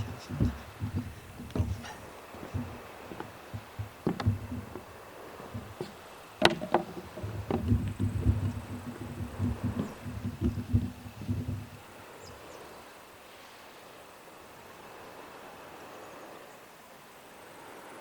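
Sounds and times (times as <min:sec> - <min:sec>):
footsteps in hiking boots: 0:00.0 - 0:11.9.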